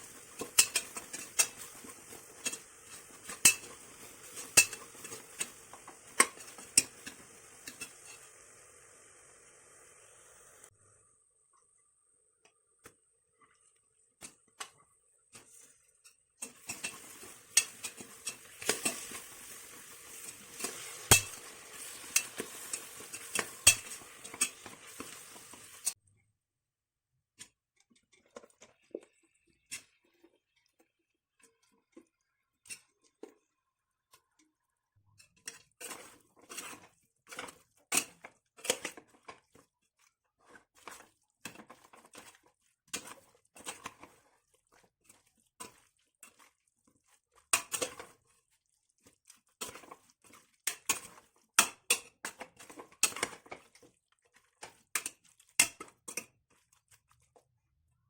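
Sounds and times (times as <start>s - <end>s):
spoon stirring in pan: 0.0s - 10.6s, 11.5s - 26.0s, 27.4s - 58.0s
sizzling hiss: 0.0s - 11.1s, 16.4s - 26.0s
utensil clinking on pan: 0.1s - 8.2s, 16.4s - 26.0s.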